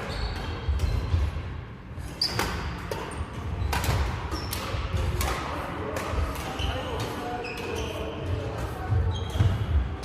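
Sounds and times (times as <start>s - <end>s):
shoe squeaks on court floor: 0.0s - 1.2s, 2.0s - 4.8s, 6.4s - 10.0s
racket hitting shuttlecock: 2.3s - 7.8s.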